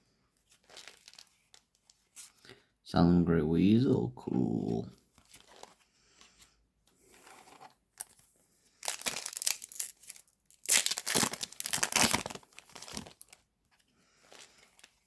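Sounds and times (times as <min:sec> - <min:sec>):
foil wrapper tearing and crinkling: 0:00.6 - 0:01.9, 0:08.8 - 0:13.4.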